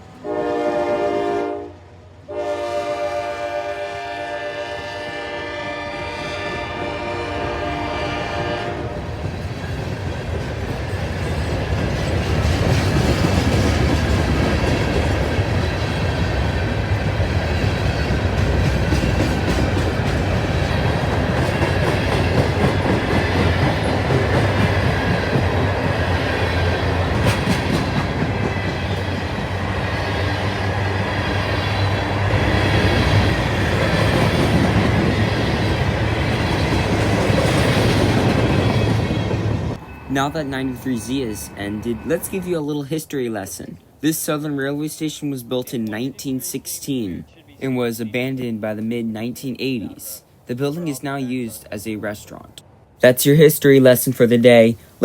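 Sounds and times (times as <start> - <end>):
freight train wheels rumbling on rails: 2.2 - 43.0.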